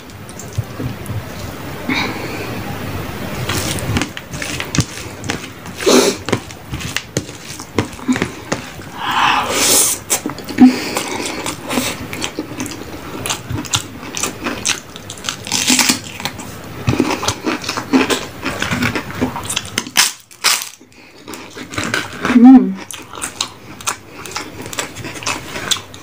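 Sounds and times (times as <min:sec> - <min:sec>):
chewing and mouth sounds: 0:10.1 - 0:26.0.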